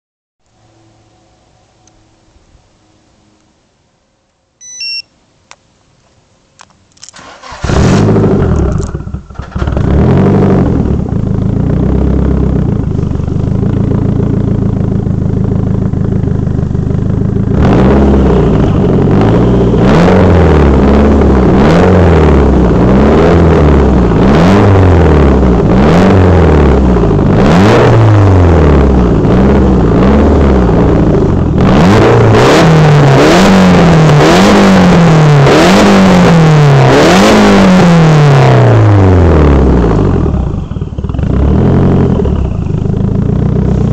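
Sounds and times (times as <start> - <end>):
remote starter electronic chirp: 4.6 - 5.1
car engine cranking and idling: 5.4 - 43.9
car engine revving: 7.2 - 43.9.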